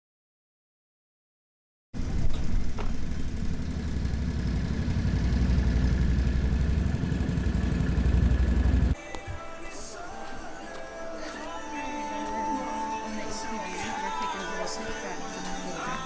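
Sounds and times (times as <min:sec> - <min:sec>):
engine running low rumble: 0:02.0 - 0:09.0.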